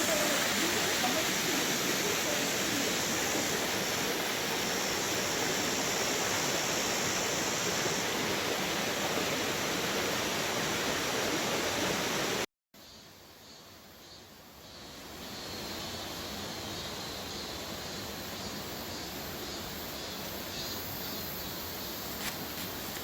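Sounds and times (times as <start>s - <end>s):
stream rushing: 0.0s - 12.5s.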